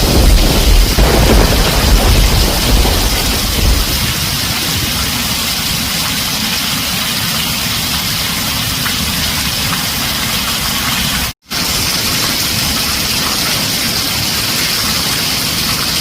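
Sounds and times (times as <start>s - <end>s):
thunder rumbling: 0.0s - 6.4s
heavy rain on a tin roof: 0.0s - 16.0s.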